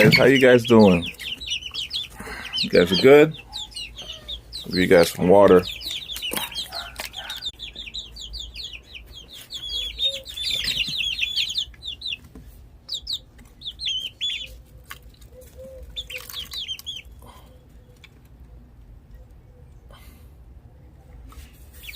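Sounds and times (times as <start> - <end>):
chicks peeping: 0.0 - 20.0, 20.8 - 21.9.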